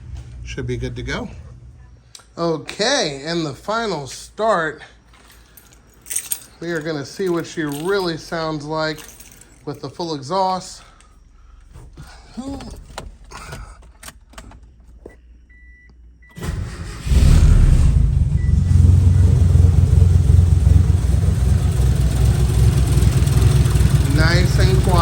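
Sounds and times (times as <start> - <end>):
car engine cranking and idling: 11.0 - 15.2, 16.3 - 25.0.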